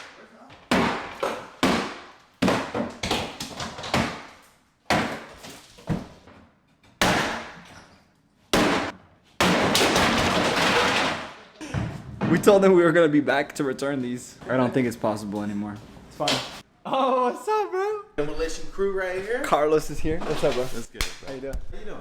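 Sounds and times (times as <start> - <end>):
crashing impacts breaking wood: 0.0 - 6.2, 7.0 - 7.6, 8.5 - 11.6
falling debris rattling: 9.8 - 11.6.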